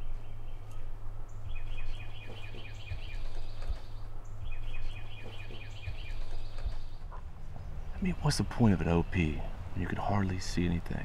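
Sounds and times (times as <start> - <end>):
bird chirping rapidly: 0.0 - 10.7
low outdoor rumble: 0.0 - 11.0.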